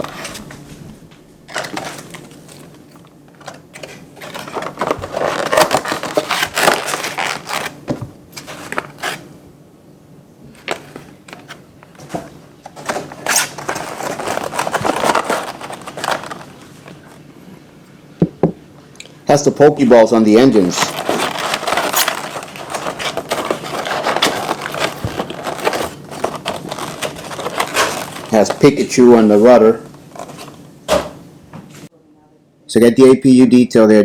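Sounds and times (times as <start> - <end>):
packaging crinkling: 0.0 - 0.6, 1.5 - 9.3, 10.5 - 17.3, 20.4 - 31.0.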